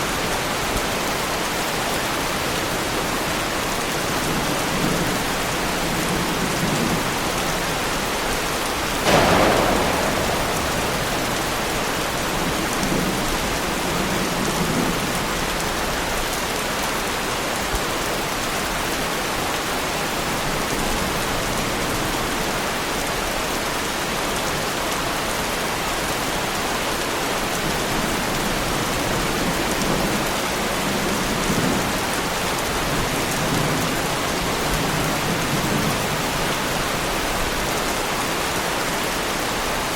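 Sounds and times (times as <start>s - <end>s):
thunderclap: 9.0s - 14.7s
heavy rain on car bodywork: 9.0s - 15.2s.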